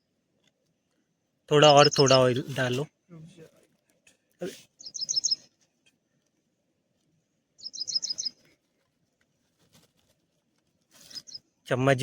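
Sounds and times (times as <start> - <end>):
bird high chirps: 1.6 - 2.8, 4.8 - 5.5, 7.6 - 8.4, 11.0 - 11.5
faint rustling: 8.3 - 11.3.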